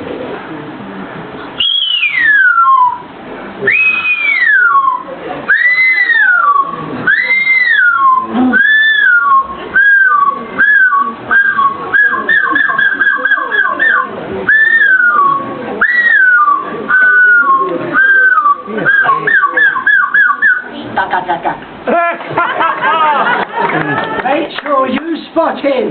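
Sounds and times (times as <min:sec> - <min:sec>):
man imitating seagull calls: 0:05.6 - 0:15.4.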